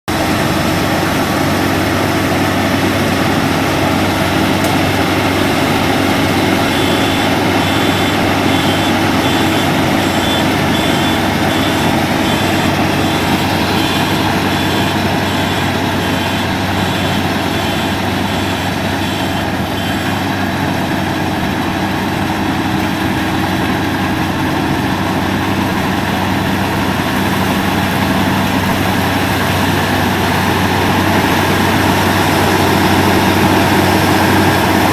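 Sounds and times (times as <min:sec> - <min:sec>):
combine harvester engine drone: 0:00.1 - 0:34.9
high repeating beep: 0:05.8 - 0:20.2.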